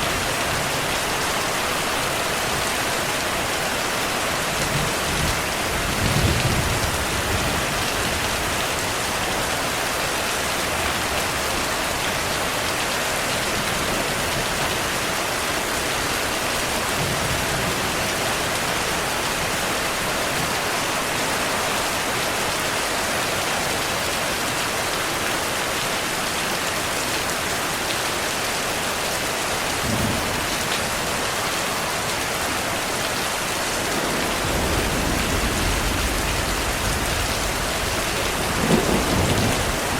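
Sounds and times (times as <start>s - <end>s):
heavy rain falling: 0.0s - 39.9s
low rumbles of thunder: 4.7s - 8.6s, 29.8s - 30.5s, 33.8s - 39.9s.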